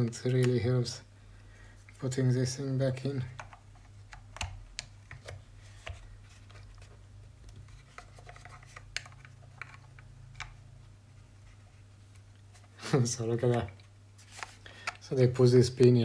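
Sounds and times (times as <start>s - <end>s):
steady low hum: 0.0s - 16.0s
plastic rubbing: 3.3s - 15.1s.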